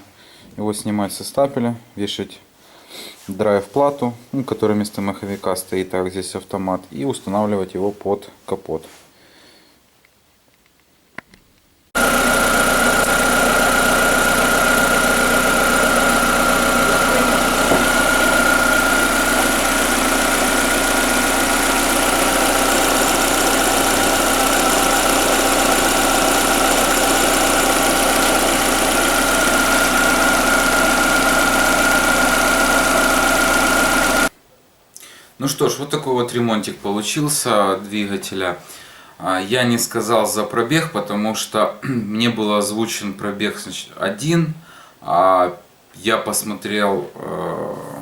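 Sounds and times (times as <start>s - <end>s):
car engine idling: 12.0s - 34.3s
steady high whine: 12.0s - 34.3s.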